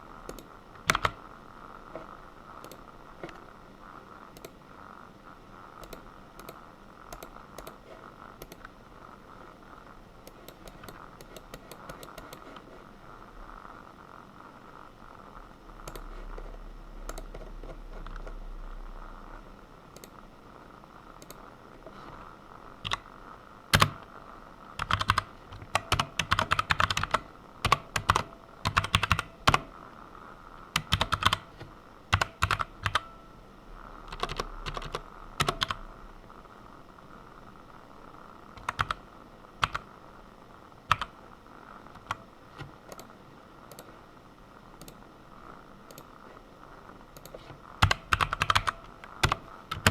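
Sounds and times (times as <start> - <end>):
typing on computer keyboard: 0.3 - 1.2, 5.8 - 7.8, 10.3 - 12.6, 22.8 - 23.0, 23.7 - 24.1, 24.8 - 29.7, 30.8 - 33.1, 34.1 - 35.8, 38.6 - 39.0, 39.6 - 39.9, 40.9 - 41.2, 42.0 - 43.1, 47.2 - 49.9.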